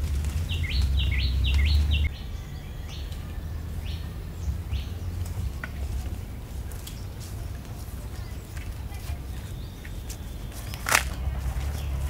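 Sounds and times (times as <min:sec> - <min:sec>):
loud low rumble: 0:00.0 - 0:07.8, 0:10.4 - 0:12.0
bird chirping: 0:00.0 - 0:12.0.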